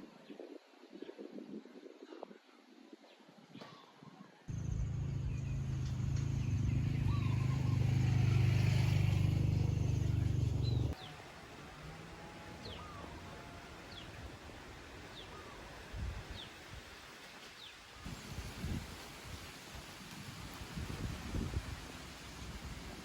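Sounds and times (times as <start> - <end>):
birds chirping: 4.5 - 11.2
low engine-like rumble: 4.5 - 11.9.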